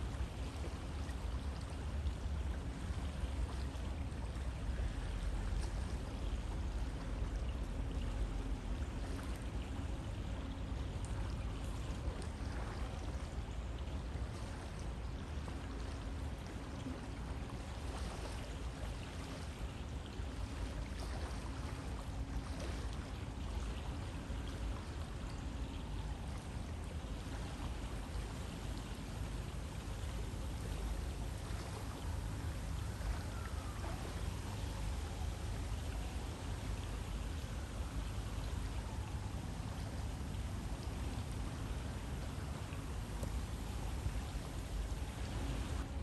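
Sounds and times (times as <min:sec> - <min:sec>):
river water rushing: 0:24.8 - 0:46.0.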